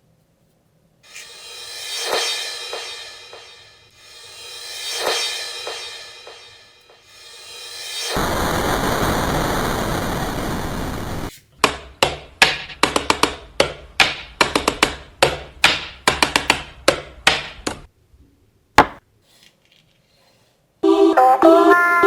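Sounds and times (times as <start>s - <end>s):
loud even hiss: 7.1s - 11.3s.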